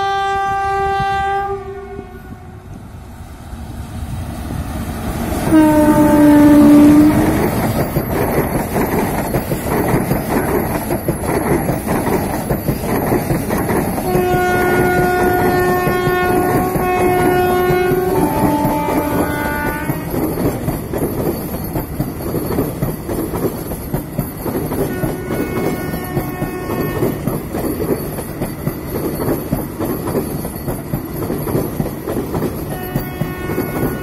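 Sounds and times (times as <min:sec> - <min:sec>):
train horn blasts: 0:00.0 - 0:02.7, 0:05.4 - 0:07.5, 0:14.0 - 0:20.3, 0:24.9 - 0:27.3, 0:32.7 - 0:34.0
train rumbling past: 0:00.0 - 0:34.0
wheels clacking over rail joints: 0:05.1 - 0:34.0.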